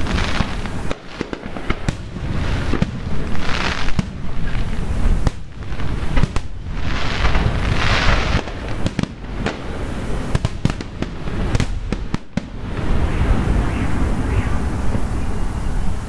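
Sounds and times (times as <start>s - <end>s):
fireworks bangs: 0.0s - 16.0s
hissing rush: 0.0s - 16.0s.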